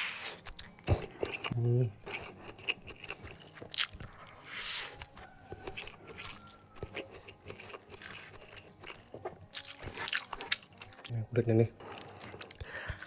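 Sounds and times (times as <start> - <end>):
person chewing food: 0.0 - 11.2, 11.8 - 13.0.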